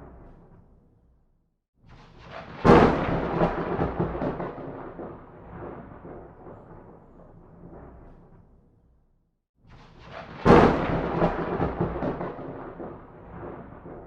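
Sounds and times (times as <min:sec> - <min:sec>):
sharp thunder crack: 0:02.5 - 0:08.1, 0:10.2 - 0:14.0
rolling thunder: 0:02.5 - 0:08.5, 0:10.2 - 0:14.0.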